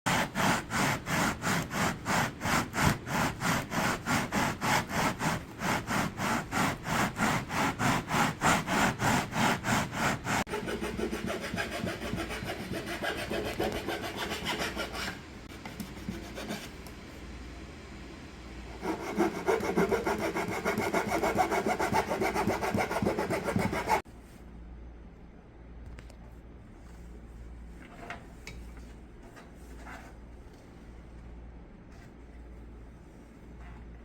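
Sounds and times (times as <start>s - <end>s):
hand tool rasping on wood: 0.1s - 15.2s, 18.8s - 24.0s.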